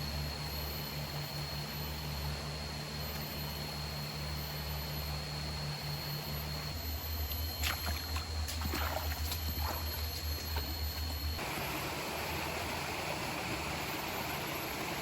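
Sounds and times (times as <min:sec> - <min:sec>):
low even hum: 0:00.0 - 0:15.0
forest stream rushing: 0:11.4 - 0:15.0.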